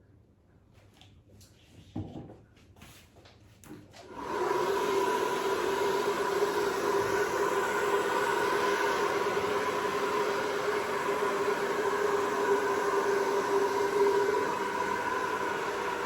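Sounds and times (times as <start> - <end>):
hair dryer running: 4.0 - 16.0.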